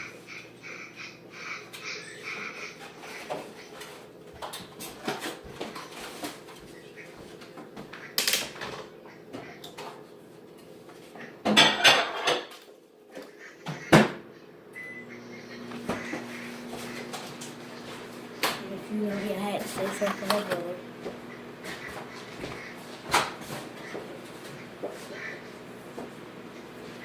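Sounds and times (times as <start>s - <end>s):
dishes and utensils clattering: 1.8s - 10.0s, 11.4s - 12.8s.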